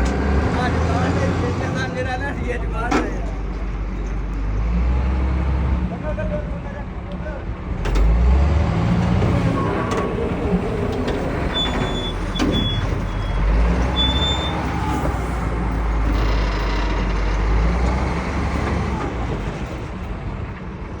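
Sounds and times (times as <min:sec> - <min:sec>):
short high squeaks: 0:11.4 - 0:15.1, 0:15.8 - 0:17.6.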